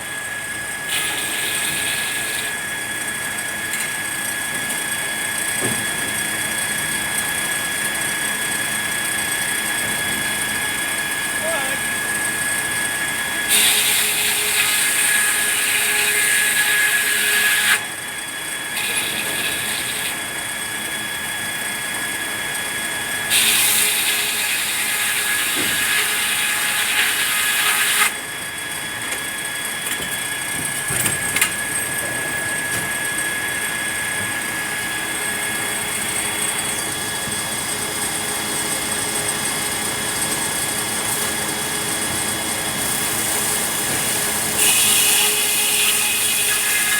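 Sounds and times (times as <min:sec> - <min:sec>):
saw cutting through wood: 0:00.0 - 0:04.4, 0:10.7 - 0:28.7, 0:32.4 - 0:46.9
sawmill machinery whining: 0:00.0 - 0:46.9.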